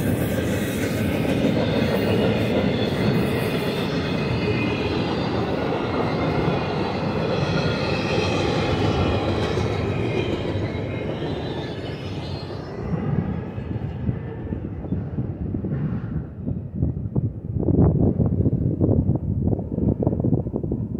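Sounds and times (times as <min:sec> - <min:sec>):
freight train rumbling: 0:00.0 - 0:20.9
high ringing tones: 0:02.9 - 0:13.8
wind on microphone: 0:12.7 - 0:20.9.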